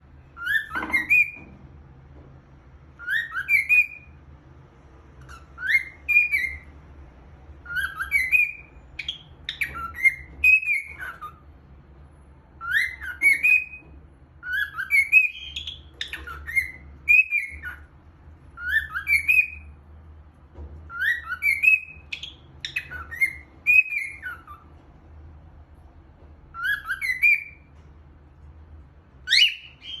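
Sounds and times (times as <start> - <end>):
cockatiel whistling: 0.3 - 1.5, 2.9 - 4.2, 5.2 - 6.7, 7.6 - 11.5, 12.5 - 19.8, 20.9 - 24.8, 26.5 - 27.8, 29.2 - 30.0.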